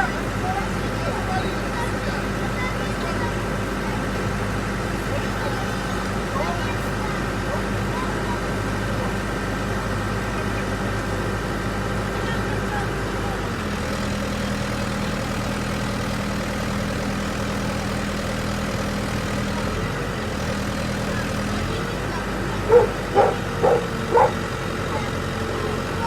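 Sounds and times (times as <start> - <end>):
truck engine idling: 0.0 - 26.0
dog barking: 22.6 - 25.2.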